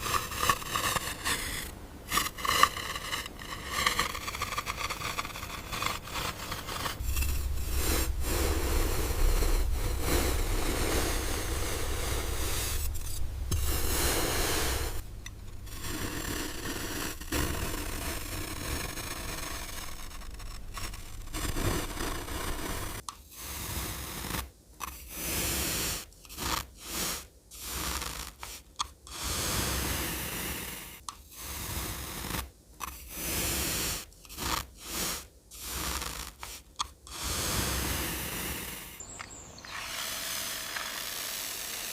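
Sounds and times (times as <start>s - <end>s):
plastic toys scraping through sand: 0.0s - 41.9s.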